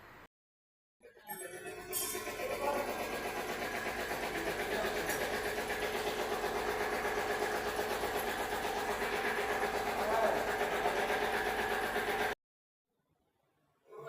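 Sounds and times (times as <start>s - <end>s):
motor humming and whining: 1.2s - 12.4s.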